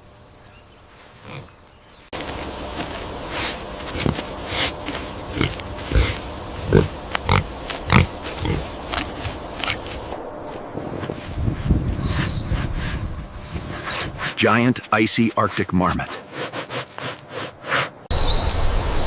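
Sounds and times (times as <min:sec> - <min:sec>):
breathy snuffling: 0:02.8 - 0:10.2
low animal grunts: 0:03.3 - 0:10.0.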